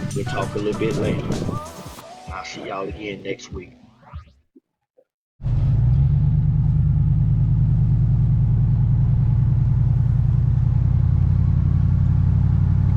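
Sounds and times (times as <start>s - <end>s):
engine running steadily: 5.6s - 12.9s.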